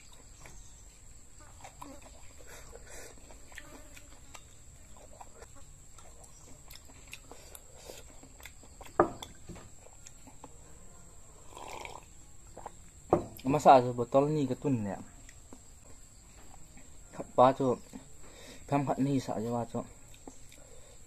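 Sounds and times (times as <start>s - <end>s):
chewing: 0.0s - 10.8s, 11.4s - 13.5s, 15.1s - 17.2s, 19.8s - 21.0s.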